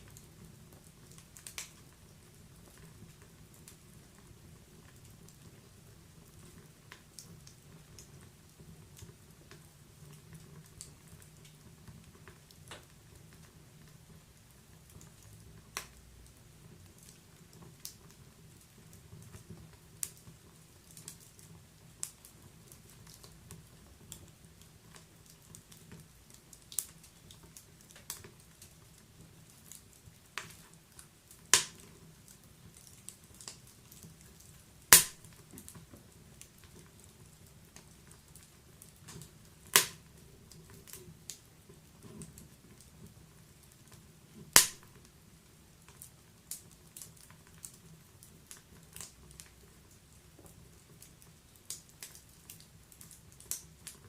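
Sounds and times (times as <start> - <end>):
fire crackling: 0.0 - 54.0
loud sharp fire pops: 31.5 - 31.8, 34.9 - 35.4, 39.7 - 40.0, 44.5 - 44.9.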